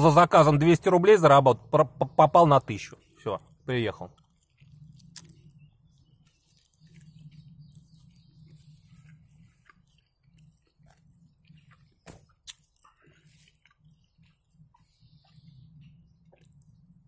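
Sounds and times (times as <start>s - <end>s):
person chewing food: 3.0s - 17.0s
wet mouth clicks and smacks: 4.2s - 5.6s, 9.1s - 17.0s.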